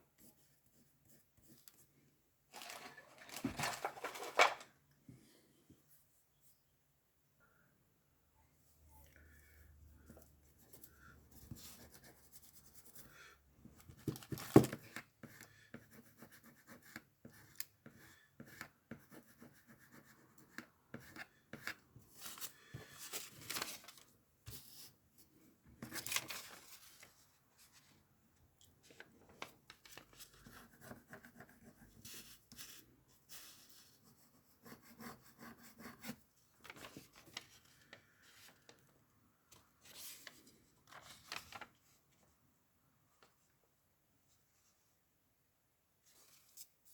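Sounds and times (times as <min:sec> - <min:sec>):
paper rustling and rubbing: 0:02.5 - 0:04.6, 0:22.1 - 0:24.8, 0:39.9 - 0:41.8.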